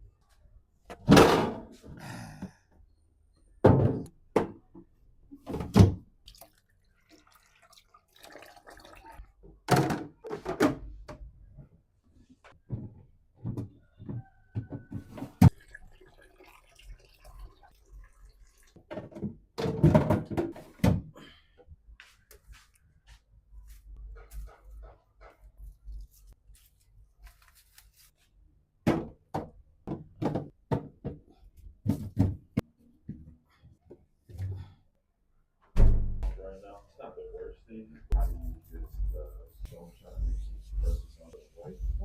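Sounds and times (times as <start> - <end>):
objects thunking and knocking: 0.9 - 2.5, 3.6 - 6.1, 9.4 - 11.7, 12.4 - 15.6, 18.8 - 21.4, 28.8 - 34.8.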